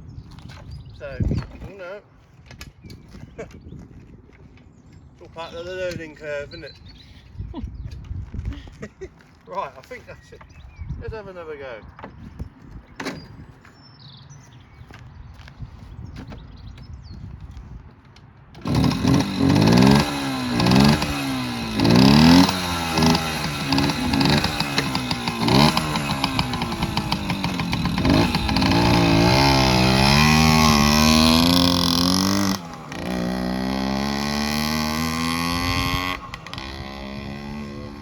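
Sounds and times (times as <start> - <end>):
two-stroke engine revving: 18.6 - 38.0.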